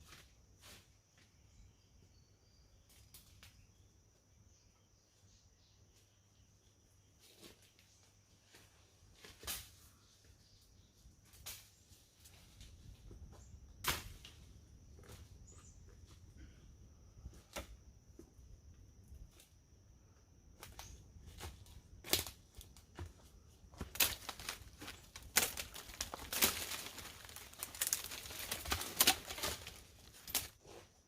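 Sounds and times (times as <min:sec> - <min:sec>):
crackling and snapping: 0:23.9 - 0:30.6
rustling: 0:23.9 - 0:30.8.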